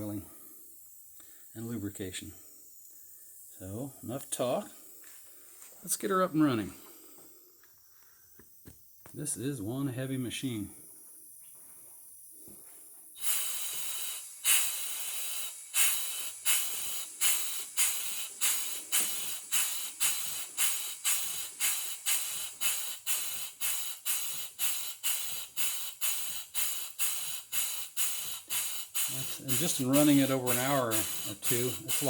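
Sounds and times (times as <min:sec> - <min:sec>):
steam hissing: 0:13.1 - 0:32.0
steam engine exhaust chuffs: 0:13.2 - 0:32.0.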